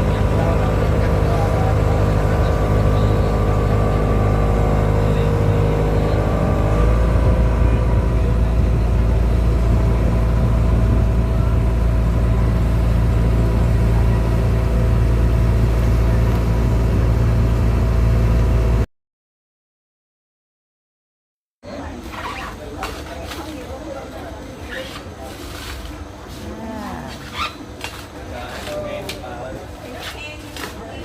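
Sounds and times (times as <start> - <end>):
motorboat engine running: 0.0 - 18.8.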